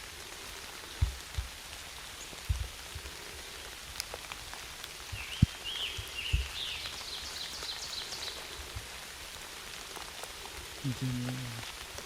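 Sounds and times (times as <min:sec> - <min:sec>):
rain pattering: 0:00.0 - 0:12.0
bird chirping: 0:05.2 - 0:08.5.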